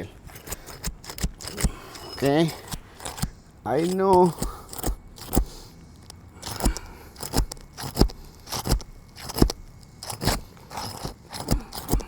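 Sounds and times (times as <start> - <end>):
crunching knocks on roof shingles: 6.4 - 12.0.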